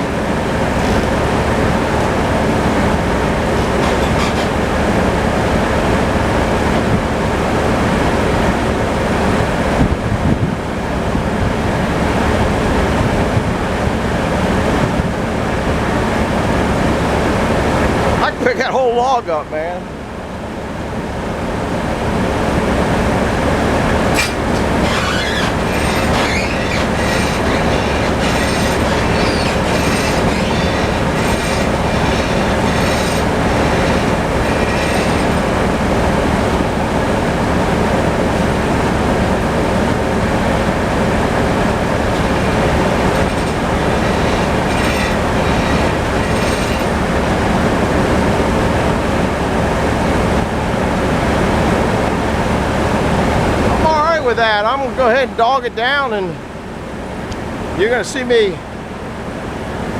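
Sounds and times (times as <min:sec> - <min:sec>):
tractor engine running: 0:00.0 - 0:59.9
metallic clicks and squeals: 0:00.6 - 0:02.2, 0:03.1 - 0:05.1, 0:24.1 - 0:35.9, 0:41.8 - 0:47.1.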